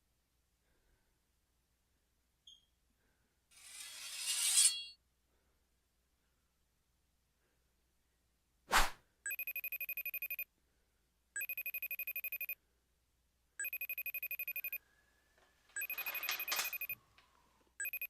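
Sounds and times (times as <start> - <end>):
phone ringing: 9.3 - 10.4, 11.4 - 12.6, 13.6 - 14.8, 15.7 - 17.2, 17.8 - 18.0.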